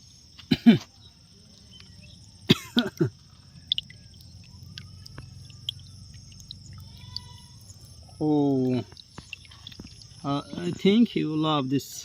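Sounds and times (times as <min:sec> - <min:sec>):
man coughing: 0:02.5 - 0:03.1.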